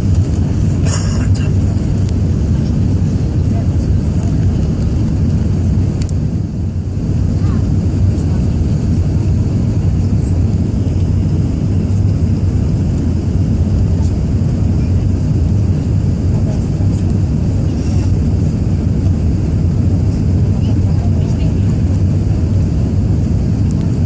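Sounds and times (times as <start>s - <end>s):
airliner cabin engine rumble: 0.0s - 24.0s.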